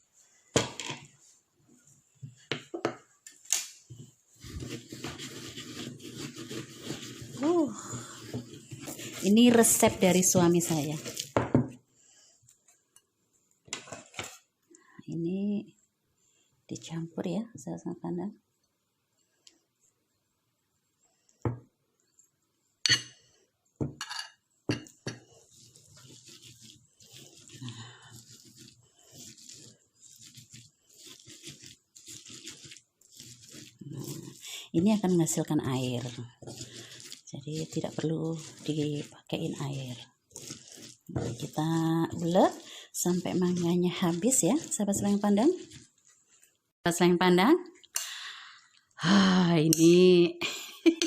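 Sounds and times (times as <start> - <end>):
rough scraping in mortar: 3.9 - 11.4, 13.7 - 14.5, 24.8 - 46.6.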